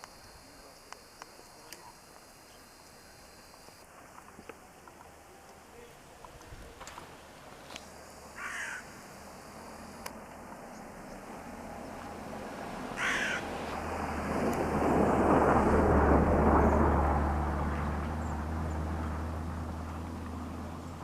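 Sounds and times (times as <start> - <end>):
passing vehicle engine: 7.1 - 21.0
crow cawing: 8.4 - 9.0, 13.0 - 13.5.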